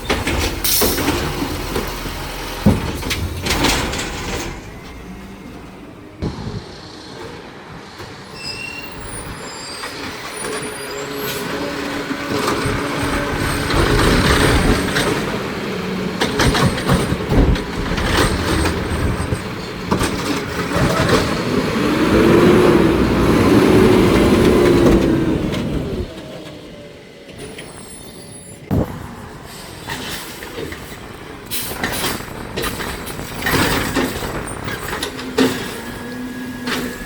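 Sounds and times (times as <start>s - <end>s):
metal clanks and bangs: 0.0s - 5.1s, 16.2s - 21.5s, 28.7s - 37.0s
garbage truck engine: 0.0s - 37.0s.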